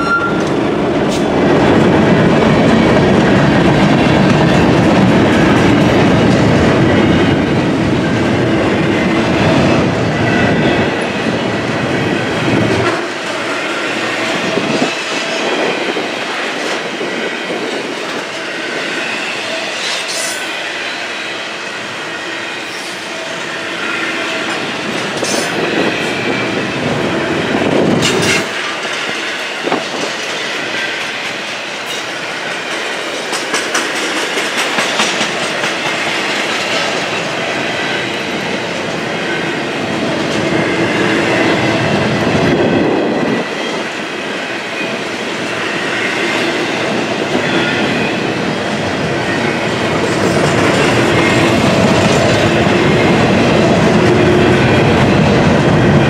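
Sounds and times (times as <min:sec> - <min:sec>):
steel wheels rumbling on rail: 0:00.0 - 0:56.0
wheels clacking over rail joints: 0:27.8 - 0:42.5.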